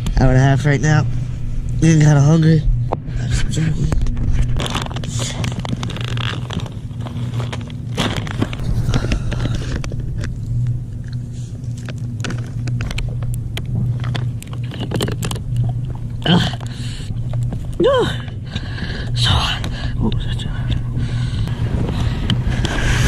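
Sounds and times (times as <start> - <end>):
low hum: 0.0 - 23.0
packet crackling and rustling: 4.0 - 19.9.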